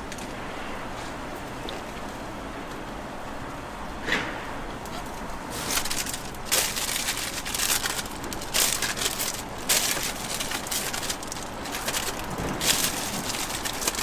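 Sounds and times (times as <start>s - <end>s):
rough scraping of toast: 5.5s - 14.0s.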